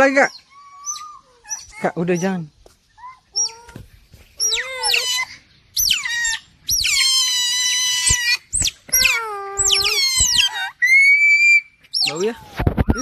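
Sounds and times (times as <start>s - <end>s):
otters squealing: 4.4s - 13.0s.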